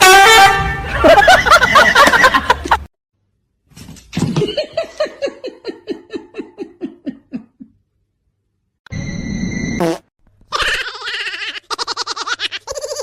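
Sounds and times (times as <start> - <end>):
person laughing high-pitched: 4.6 - 7.7, 10.5 - 13.0.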